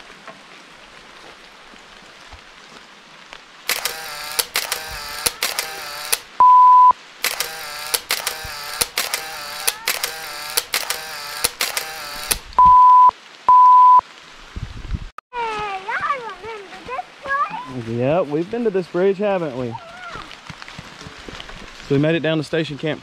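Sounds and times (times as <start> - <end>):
loud electronic beeps: 6.4 - 7.0, 12.6 - 14.0.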